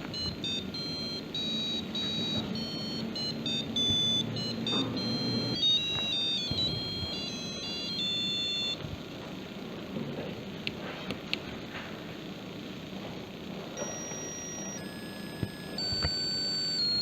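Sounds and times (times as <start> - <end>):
piezo buzzer beeping melody: 0.0 - 8.9, 13.8 - 17.0.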